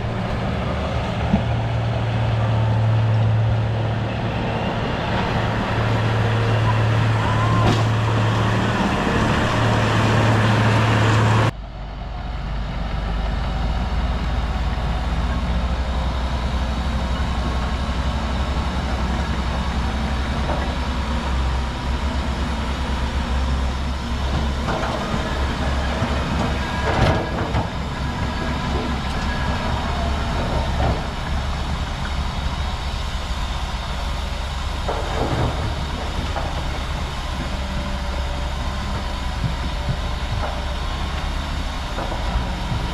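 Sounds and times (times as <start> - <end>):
bulldozer engine droning: 0.0 - 42.9.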